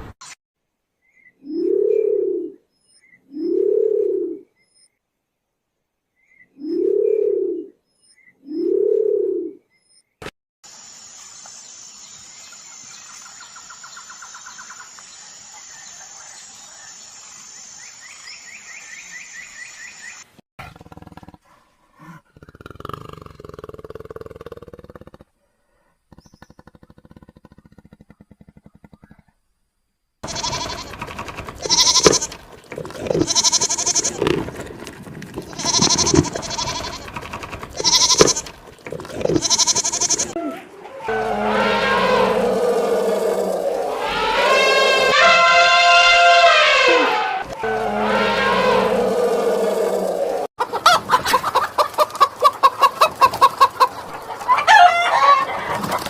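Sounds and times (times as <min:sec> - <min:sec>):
outdoor ambience hiss: 0:10.6 - 0:20.4, 0:29.3 - 0:45.2
animal harsh pulsing calls: 0:30.2 - 0:32.4, 0:35.5 - 0:38.5
loud animal roar: 0:35.3 - 0:50.5.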